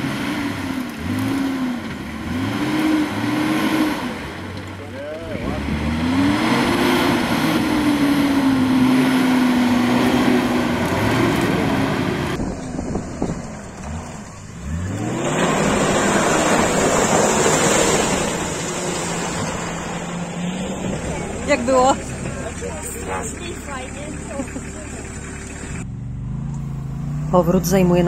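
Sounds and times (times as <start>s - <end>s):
engine revving hard: 0.0s - 4.4s, 5.2s - 12.4s, 14.6s - 28.0s.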